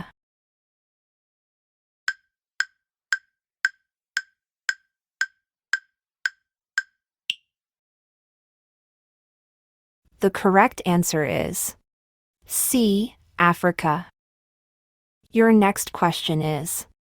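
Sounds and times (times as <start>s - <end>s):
countdown timer ticking: 2.1s - 7.4s.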